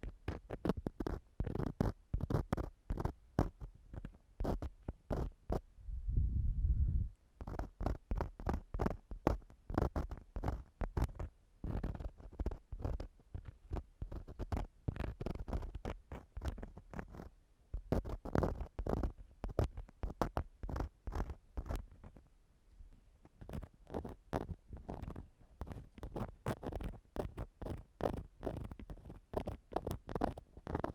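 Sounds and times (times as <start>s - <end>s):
tool scraping in microphone ear: 7.4s - 22.2s, 23.4s - 30.9s.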